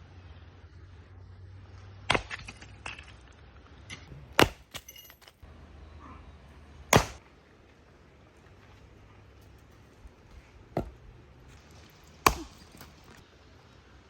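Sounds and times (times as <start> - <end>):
ringing clink: 4.7 - 5.4
sharp knocks: 7.0 - 7.2.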